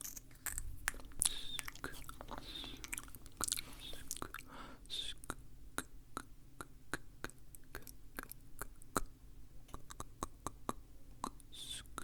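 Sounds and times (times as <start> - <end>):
tongue and lip clicks: 0.0 - 9.1, 9.7 - 12.0
breathy hiss: 1.2 - 5.2.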